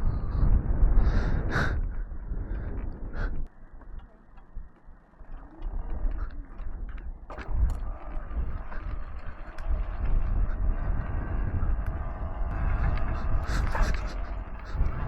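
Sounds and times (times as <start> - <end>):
dirt bike tyre noise: 0.0 - 15.0
wind buffeting microphone: 0.0 - 15.0.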